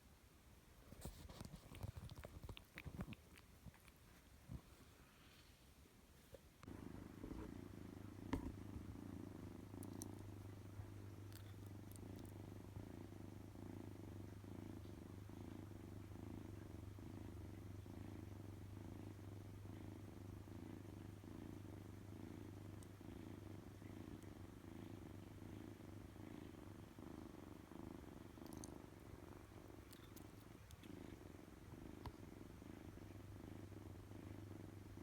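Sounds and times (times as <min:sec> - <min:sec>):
kitten purring: 0:00.8 - 0:05.6, 0:06.3 - 0:35.0
faint ticks: 0:28.4 - 0:28.8.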